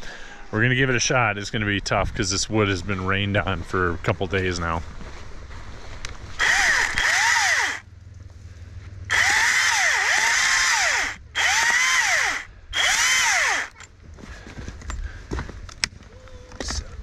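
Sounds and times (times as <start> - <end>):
saw cutting firewood: 6.4 - 7.8, 9.1 - 13.8.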